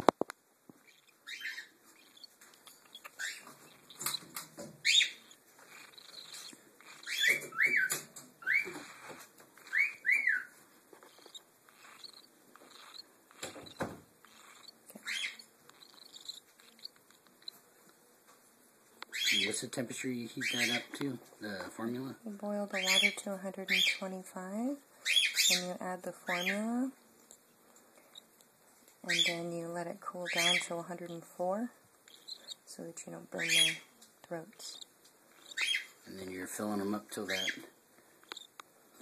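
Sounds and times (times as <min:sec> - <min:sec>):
chicks chirping begging calls: 0:00.8 - 0:17.7, 0:29.0 - 0:32.7, 0:33.3 - 0:36.1.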